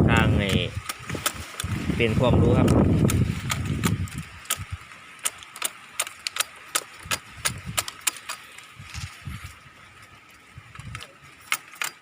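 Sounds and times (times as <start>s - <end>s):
thorns snapping as cut: 0.5s - 1.8s, 2.6s - 8.5s, 11.5s - 12.0s.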